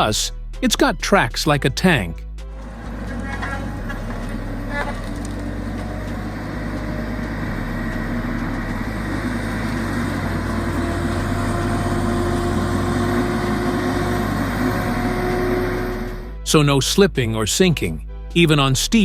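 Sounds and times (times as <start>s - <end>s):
diesel engine running: 1.8s - 16.6s.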